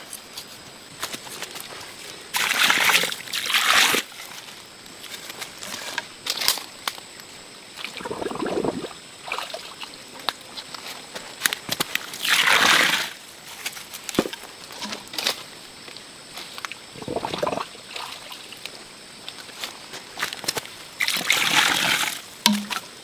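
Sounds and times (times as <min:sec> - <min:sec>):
water splashing: 0:07.9 - 0:09.0, 0:17.0 - 0:17.7
water sloshing: 0:08.0 - 0:09.0, 0:17.0 - 0:17.7.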